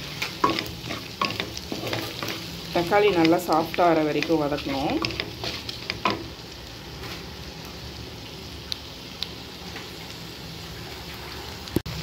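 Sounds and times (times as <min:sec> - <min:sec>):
spatula scraping pan: 0:00.0 - 0:03.5, 0:04.1 - 0:06.3
food sizzling in pan: 0:00.0 - 0:12.0.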